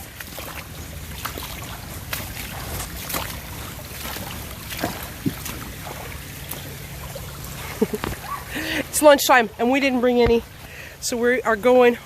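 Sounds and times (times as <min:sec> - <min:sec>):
sharp knocks or splashes: 0:00.0 - 0:08.7
moving water: 0:00.0 - 0:12.0.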